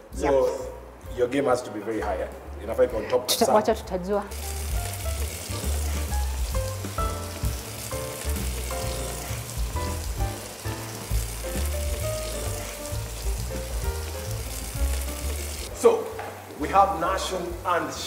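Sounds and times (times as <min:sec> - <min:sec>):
food sizzling in a pan: 0:03.6 - 0:18.0.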